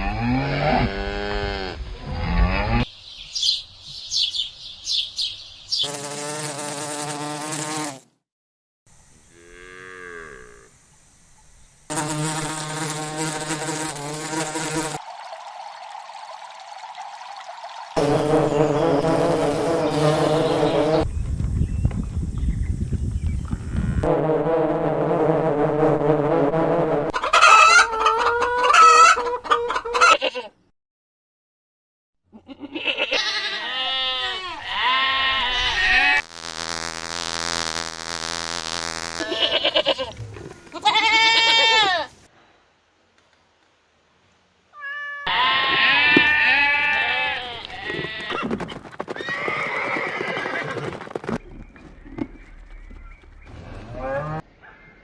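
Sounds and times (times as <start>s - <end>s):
farm animals bleating: 29.9s - 30.5s, 32.3s - 36.2s, 39.2s - 42.2s, 44.8s - 48.4s.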